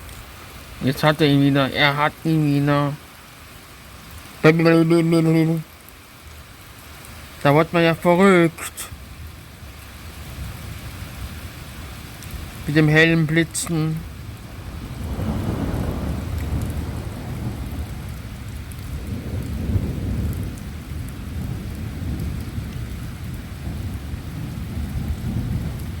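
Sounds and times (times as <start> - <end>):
steady rain: 0.0 - 26.0
rolling thunder rumble: 9.0 - 26.0.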